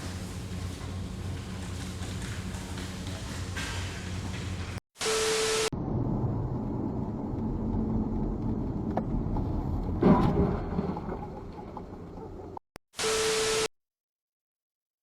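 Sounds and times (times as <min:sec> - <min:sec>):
low vehicle rumble: 0:05.8 - 0:12.6.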